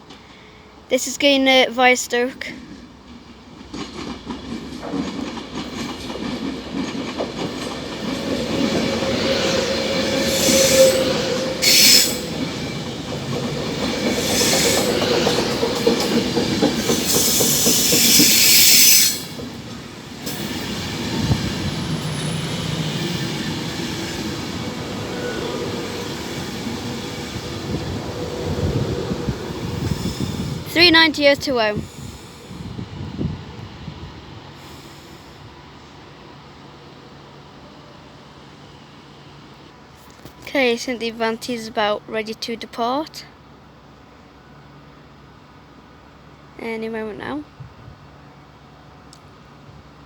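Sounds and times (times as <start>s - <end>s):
train rumble and wheel clatter: 0.0s - 50.0s
train wheels squealing: 8.2s - 12.9s, 14.0s - 15.3s, 16.0s - 19.4s, 20.2s - 27.6s.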